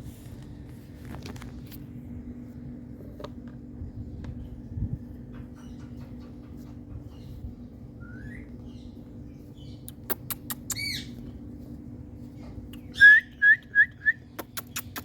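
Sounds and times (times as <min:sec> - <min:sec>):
steady low hum: 0:00.0 - 0:15.0
parrot chirping: 0:09.6 - 0:11.1.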